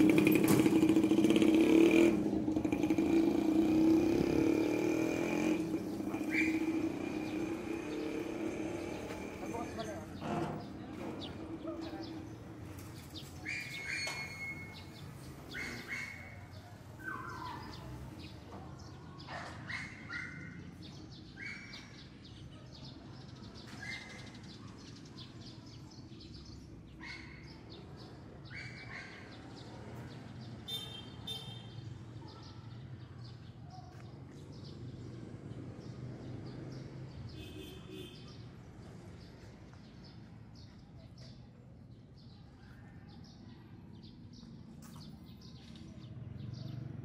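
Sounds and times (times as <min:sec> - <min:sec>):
bird chirping: 0:05.9 - 0:31.6.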